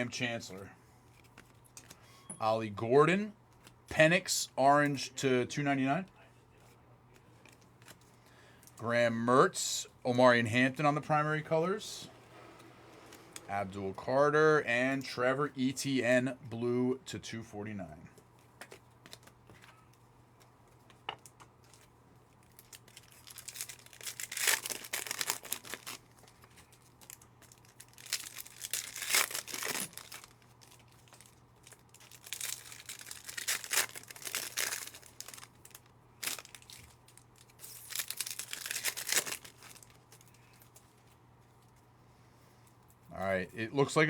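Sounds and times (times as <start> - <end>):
foil wrappers tearing and crinkling: 21.6 - 40.9.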